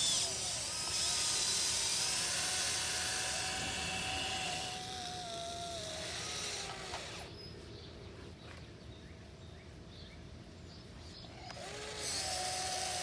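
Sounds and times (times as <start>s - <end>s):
electric motors whining: 0.0s - 7.3s, 11.2s - 13.0s.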